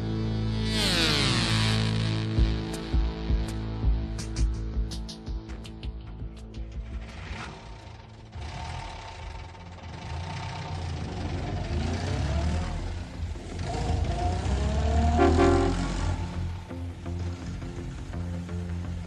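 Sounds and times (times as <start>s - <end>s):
heavy vehicle engine rumbling: 6.5s - 19.0s
rising and falling whine: 14.4s - 16.6s.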